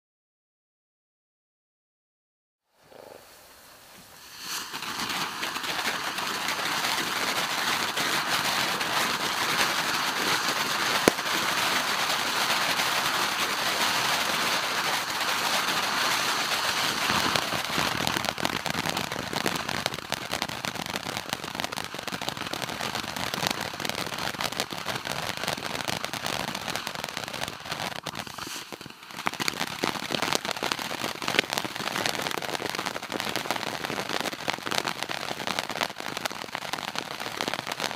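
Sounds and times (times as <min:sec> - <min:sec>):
firework crackling: 0:02.7 - 0:37.9
firework pop: 0:04.0 - 0:06.8, 0:16.9 - 0:18.8, 0:26.8 - 0:30.5.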